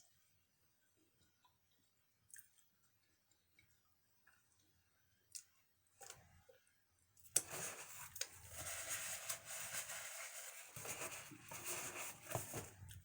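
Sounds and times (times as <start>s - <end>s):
paper packaging crinkling: 7.4s - 12.9s.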